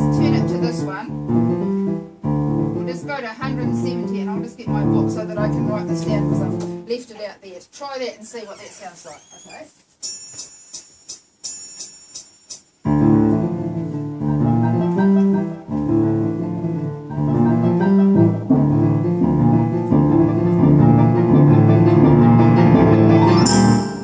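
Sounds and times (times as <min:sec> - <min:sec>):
piano piece with accompaniment: 0:00.0 - 0:07.0, 0:12.8 - 0:24.0
metronome clicks: 0:10.0 - 0:12.7.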